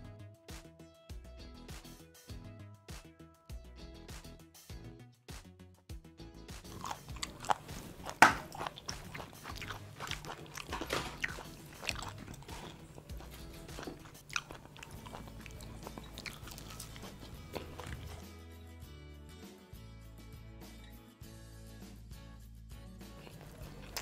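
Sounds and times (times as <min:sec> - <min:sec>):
quiet background music: 0:00.0 - 0:24.0
person crunching fried chicken: 0:06.7 - 0:18.2, 0:23.2 - 0:24.0.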